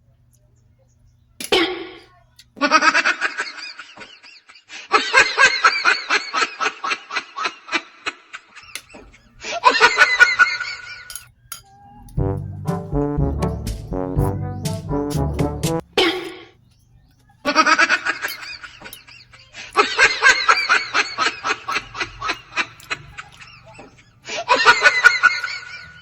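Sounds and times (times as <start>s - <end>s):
hearty laughter: 2.6s - 11.2s, 17.4s - 26.0s.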